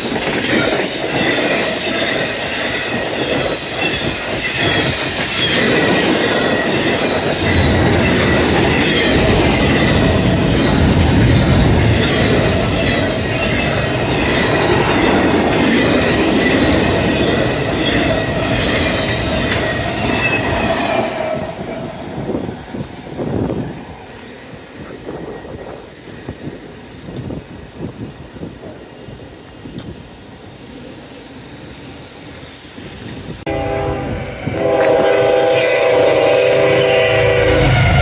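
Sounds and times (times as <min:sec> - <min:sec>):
steel wheels rumbling on rail: 0:00.0 - 0:38.0
high squeal: 0:00.5 - 0:24.0, 0:34.0 - 0:38.0.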